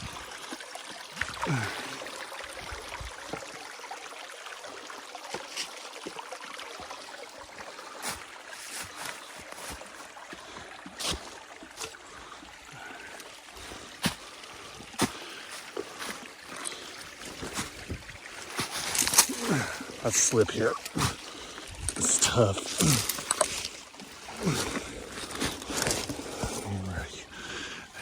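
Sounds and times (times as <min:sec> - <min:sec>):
creek water trickling over rocks: 0:00.0 - 0:28.0.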